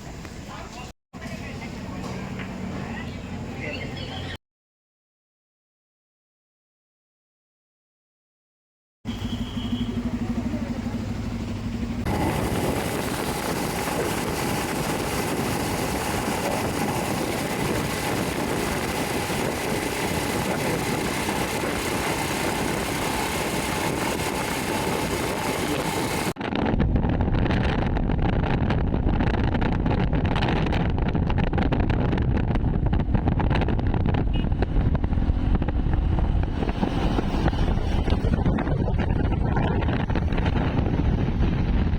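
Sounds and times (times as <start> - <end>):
motorcycle engine: 9.1 - 31.7, 32.4 - 41.9
wind buffeting on microphone: 11.4 - 41.9
wind rushing: 11.6 - 41.9.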